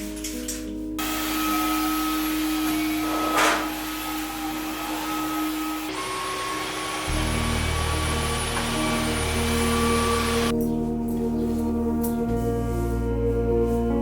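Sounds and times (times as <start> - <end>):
vacuum cleaner running: 1.0 - 10.5.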